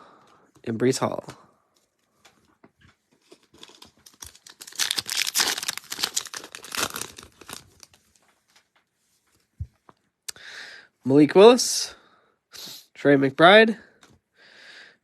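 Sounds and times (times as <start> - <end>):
plastic wrapper tearing and crinkling: 3.2 - 8.2.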